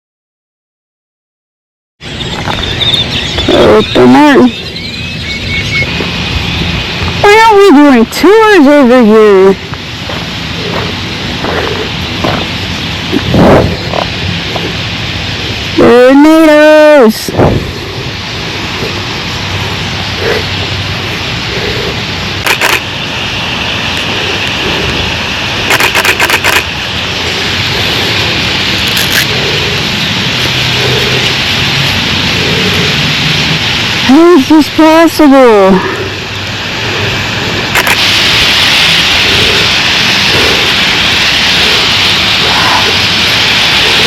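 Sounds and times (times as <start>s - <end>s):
flock of birds chattering: 2.0s - 44.0s
purple martins calling: 2.1s - 8.6s, 10.0s - 22.1s, 27.0s - 33.8s
sharp clicks: 22.4s - 22.9s, 25.7s - 26.7s, 37.8s - 38.1s.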